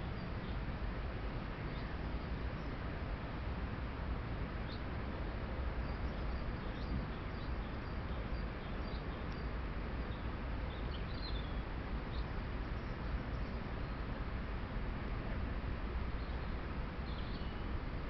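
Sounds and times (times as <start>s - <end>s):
steady microphone hiss: 0.0s - 18.0s.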